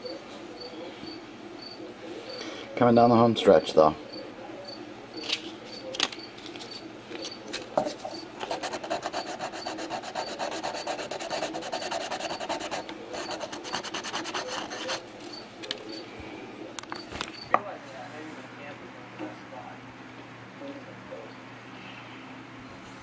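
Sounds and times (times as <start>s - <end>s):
sandpaper rubbing on wood: 8.4s - 15.0s.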